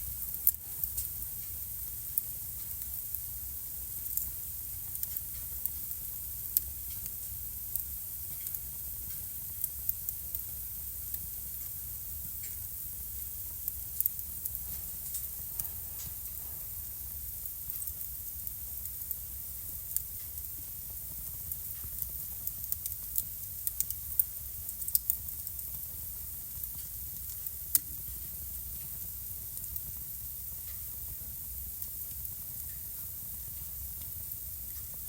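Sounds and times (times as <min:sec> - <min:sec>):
low rumble and hiss of flames: 0:00.0 - 0:35.0
wood fire crackling: 0:00.0 - 0:35.0.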